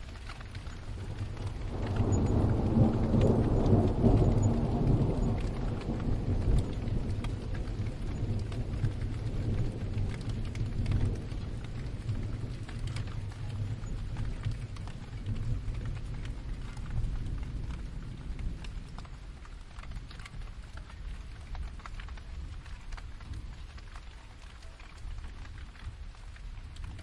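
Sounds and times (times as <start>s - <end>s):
raindrops ticking: 0.0s - 27.0s
steady rain: 0.0s - 27.0s
distant thunder rumbling: 0.7s - 21.2s.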